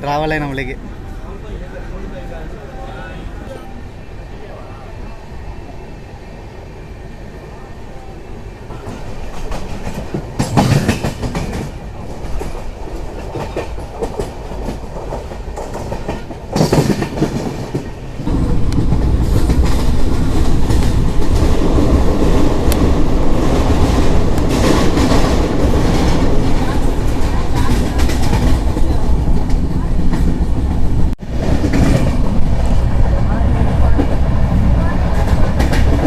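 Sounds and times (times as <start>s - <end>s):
train rumble: 0.0s - 36.0s
train wheels clattering: 8.7s - 33.0s, 35.0s - 36.0s.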